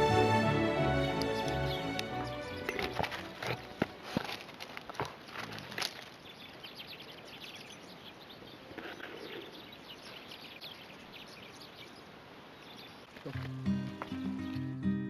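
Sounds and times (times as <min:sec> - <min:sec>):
faint outdoor hiss: 0:00.0 - 0:15.0
small birds chirping: 0:01.2 - 0:04.0, 0:05.4 - 0:14.6.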